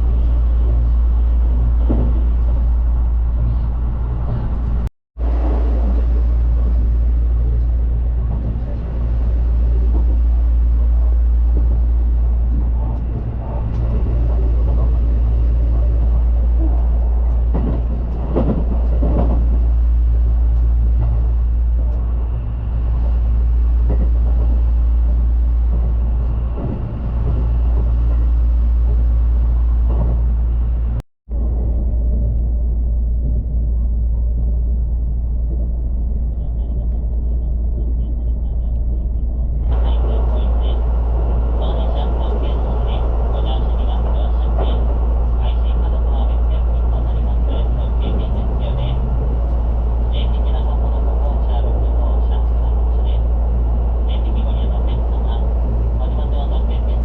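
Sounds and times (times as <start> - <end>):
train rumbling: 0.0 - 57.0
faint voices: 36.3 - 57.0.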